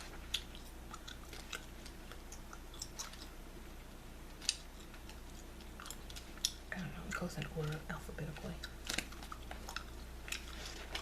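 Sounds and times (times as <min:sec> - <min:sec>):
gum chewing clicks and smacks: 0:00.0 - 0:03.4, 0:04.3 - 0:06.8, 0:08.5 - 0:11.0.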